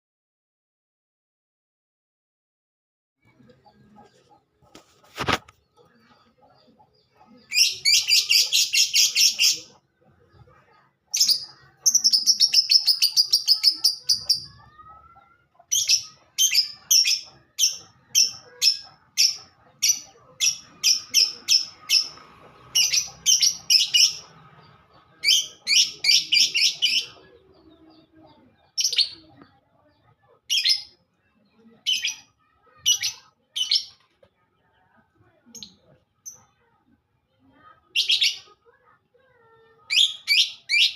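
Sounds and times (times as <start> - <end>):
songbird chattering and chirping: 5.5 - 34.0.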